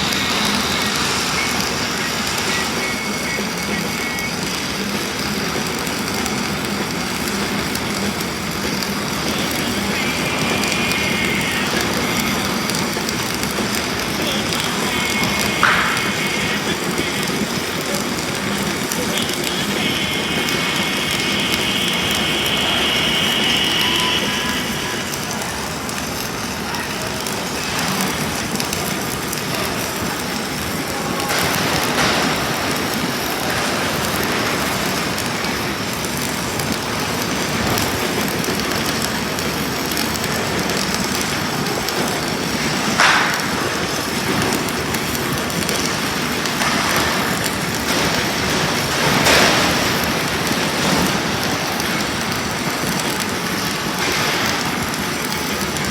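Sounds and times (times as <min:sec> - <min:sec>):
welding arc crackling hiss: 0:00.0 - 0:55.9.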